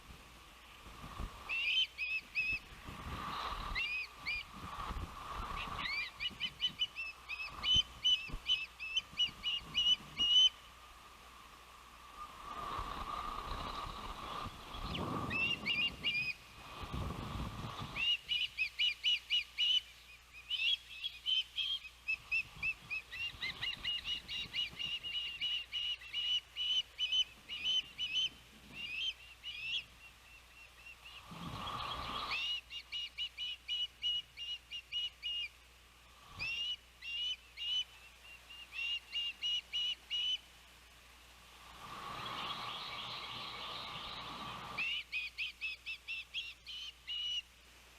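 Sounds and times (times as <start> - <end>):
wind gusts on microphone: 0.0 - 10.4, 12.1 - 18.3, 31.1 - 32.4, 41.6 - 44.8
ospreys calling: 1.4 - 4.6, 5.2 - 10.8, 17.6 - 35.6, 36.2 - 40.5, 41.8 - 47.6.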